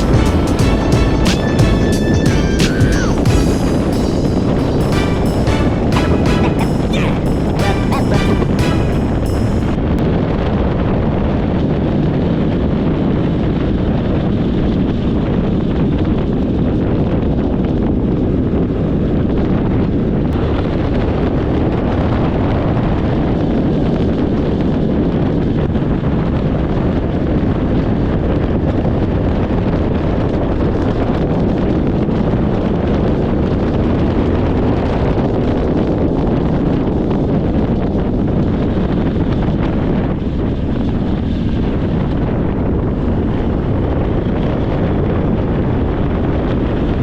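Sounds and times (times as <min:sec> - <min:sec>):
wind rush over microphone: 0:09.6 - 0:47.0.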